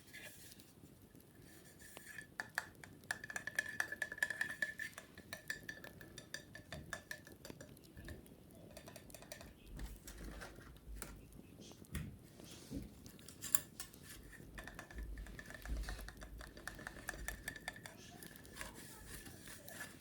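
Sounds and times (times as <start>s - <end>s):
wicker basket being scratched: 15.4s - 20.0s.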